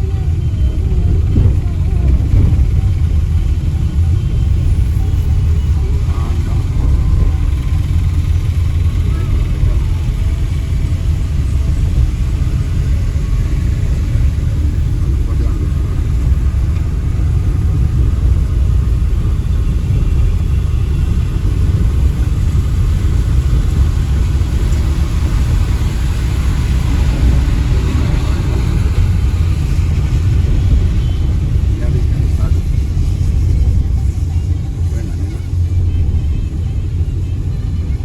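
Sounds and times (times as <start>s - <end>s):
car engine and road noise: 0.0s - 38.0s.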